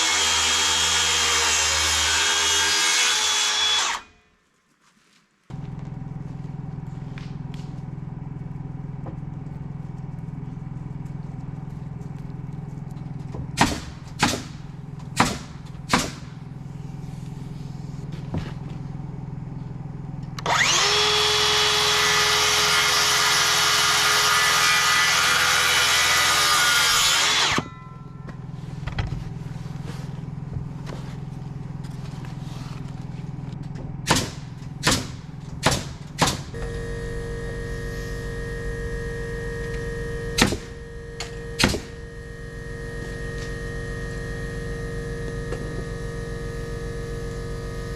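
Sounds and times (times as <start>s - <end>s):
power saw cutting lumber: 0.0s - 4.1s, 20.4s - 27.8s, 39.3s - 47.9s
sharp knocks: 41.6s - 41.9s.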